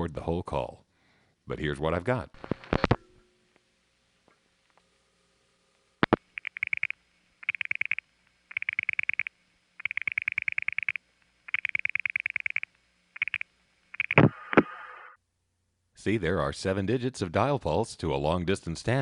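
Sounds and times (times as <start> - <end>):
telephone dial pulse clicks: 6.0 - 14.2.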